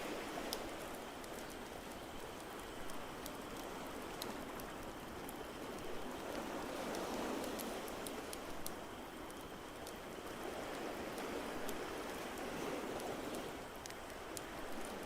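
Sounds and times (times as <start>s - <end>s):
rushing water noise: 0.0s - 15.0s.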